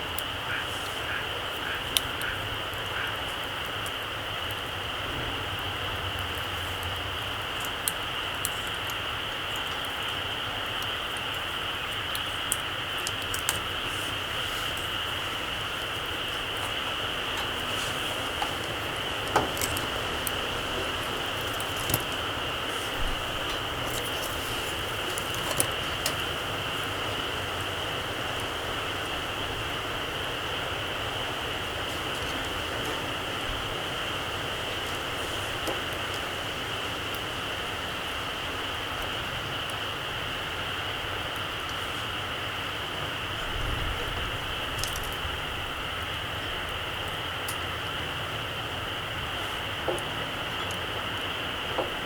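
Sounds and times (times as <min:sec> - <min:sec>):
campfire crackles: 0:00.0 - 0:52.0
steady background hiss: 0:00.0 - 0:52.0.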